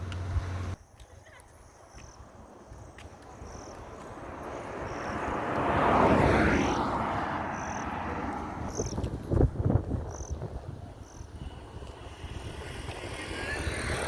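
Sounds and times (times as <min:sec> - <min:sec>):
vehicle passing by: 0:04.0 - 0:14.0.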